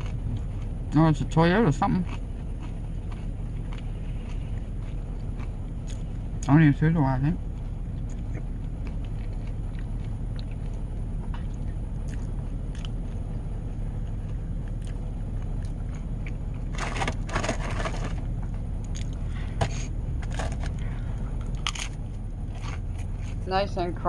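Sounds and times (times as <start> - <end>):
crisps crunching: 0.0 - 6.1, 14.0 - 18.2, 20.2 - 23.4
vehicle cabin rumble: 0.0 - 24.0.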